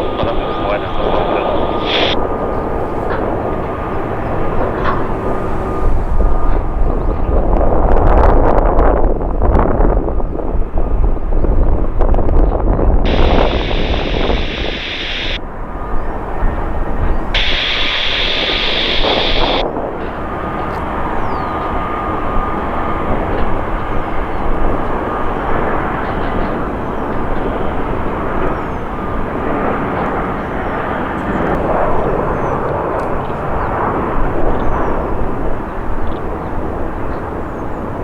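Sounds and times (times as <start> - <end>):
faint high whine: 0.0 - 6.5, 13.1 - 30.9
jet engines roaring: 0.0 - 8.6, 12.6 - 38.0.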